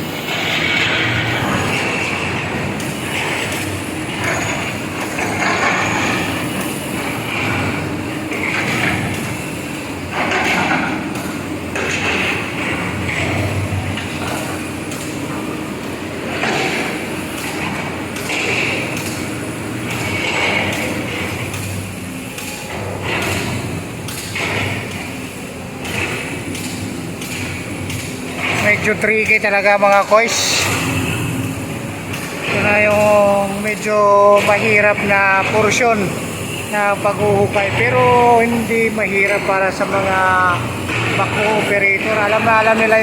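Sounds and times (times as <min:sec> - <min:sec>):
excavator engine: 0:00.0 - 0:43.0.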